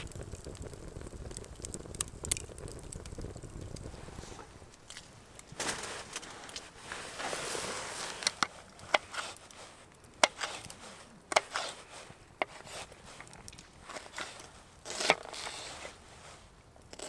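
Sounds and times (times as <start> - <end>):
rustling: 3.7 - 16.6.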